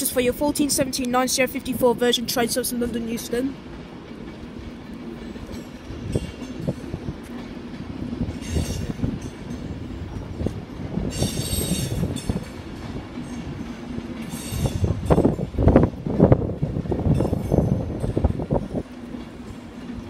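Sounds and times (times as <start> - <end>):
train rumble: 0.0 - 20.0
train wheels squealing: 8.4 - 9.0, 11.1 - 12.4, 14.2 - 15.3.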